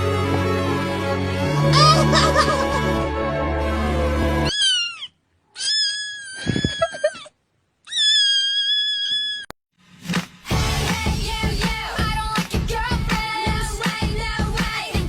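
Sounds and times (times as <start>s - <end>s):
music: 0.0s - 4.5s, 9.9s - 15.0s
cat meowing: 4.4s - 7.2s, 7.9s - 9.5s.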